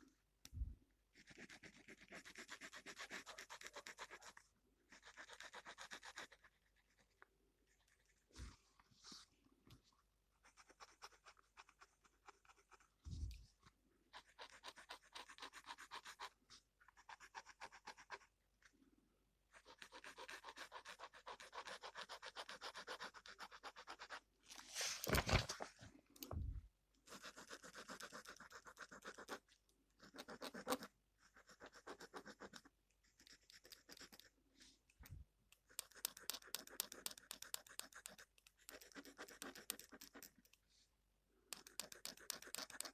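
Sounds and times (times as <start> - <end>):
pen scratching on paper: 1.2 - 9.3, 10.4 - 13.4, 14.1 - 18.3, 19.5 - 24.2, 27.0 - 34.4, 35.6 - 40.6, 41.5 - 42.9.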